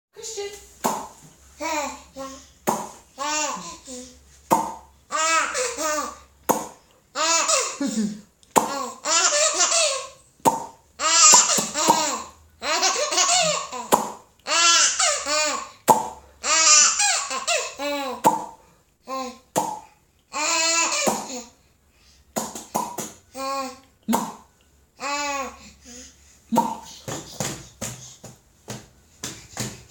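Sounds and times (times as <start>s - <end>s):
sharp pops: 2.7s - 3.0s, 4.5s - 4.9s, 22.4s - 23.1s.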